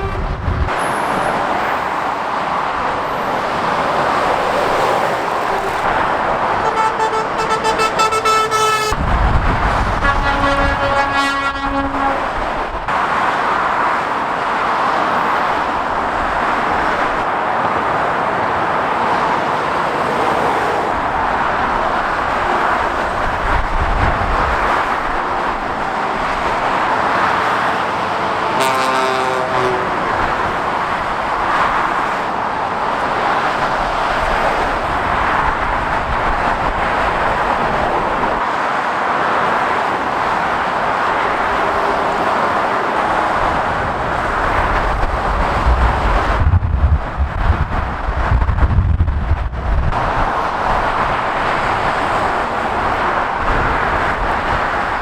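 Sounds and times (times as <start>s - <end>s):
vehicle horn blast: 0.0s - 0.6s, 5.5s - 9.0s, 10.0s - 12.3s, 28.4s - 30.0s
heavy motorway traffic: 0.0s - 55.0s.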